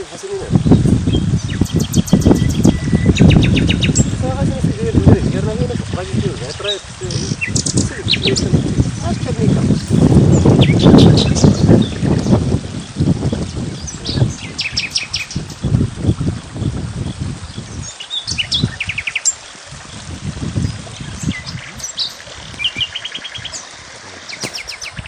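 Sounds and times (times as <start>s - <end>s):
small birds chirping: 0.0s - 4.4s, 5.0s - 25.0s.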